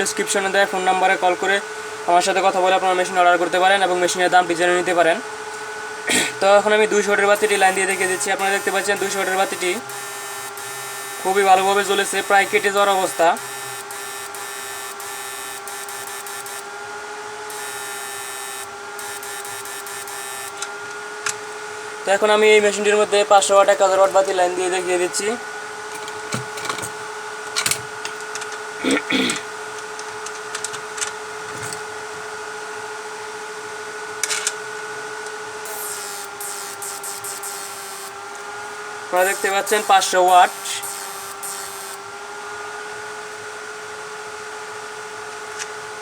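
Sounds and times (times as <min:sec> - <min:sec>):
inverter whining: 0:00.0 - 0:28.2, 0:35.5 - 0:42.3
high-pitched electrical hum: 0:00.0 - 0:29.4, 0:35.1 - 0:42.8
cooling fans whirring: 0:00.0 - 0:32.5, 0:35.1 - 0:42.6
sharp clicks: 0:07.4 - 0:16.7, 0:17.5 - 0:20.7, 0:35.7 - 0:38.1, 0:39.2 - 0:42.0
hiss: 0:35.7 - 0:38.1, 0:39.2 - 0:42.0.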